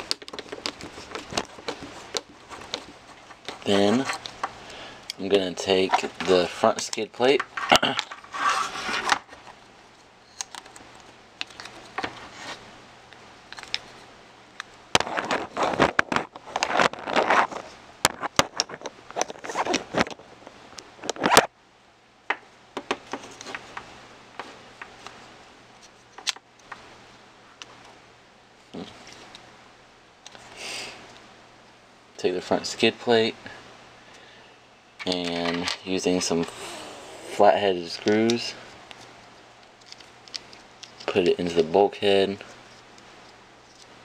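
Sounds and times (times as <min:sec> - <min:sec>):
plastic parts clicking: 0:00.0 - 0:04.5
scraping and rustling: 0:00.0 - 0:04.6, 0:05.6 - 0:06.6, 0:07.3 - 0:10.9, 0:11.5 - 0:12.7, 0:15.0 - 0:21.5.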